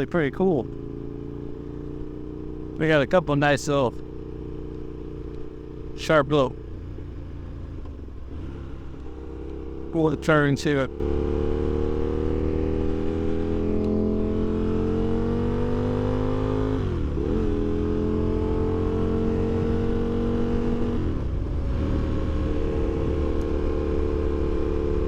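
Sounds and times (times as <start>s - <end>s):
wind and road rumble: 0.0s - 25.0s.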